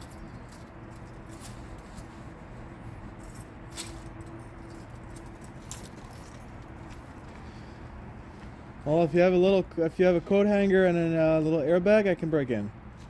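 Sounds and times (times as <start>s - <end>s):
keys jingling: 0.0s - 2.2s, 3.1s - 7.4s
steady low hum: 0.0s - 13.0s.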